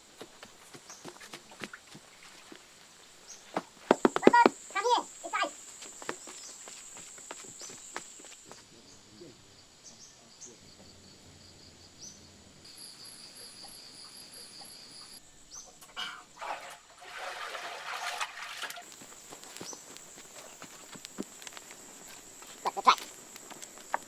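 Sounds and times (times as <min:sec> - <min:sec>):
insects chirring: 0:00.0 - 0:24.0
rustling and scraping: 0:15.8 - 0:24.0.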